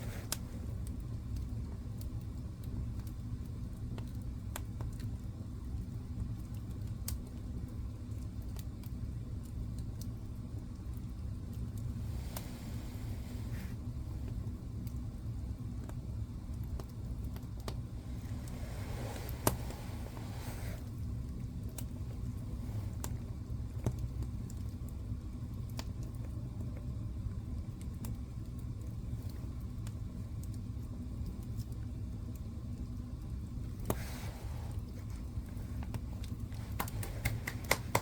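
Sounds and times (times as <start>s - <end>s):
fire crackles: 0.0s - 38.0s
wood fire rumbling: 0.0s - 38.0s
fire pop with hiss: 18.4s - 20.9s, 33.8s - 34.8s.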